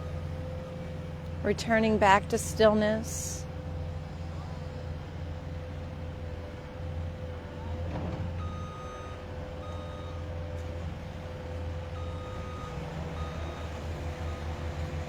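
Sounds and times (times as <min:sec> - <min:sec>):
diesel engine running: 0:00.0 - 0:15.0
reversing alarm beeping: 0:08.4 - 0:10.3, 0:12.0 - 0:15.0.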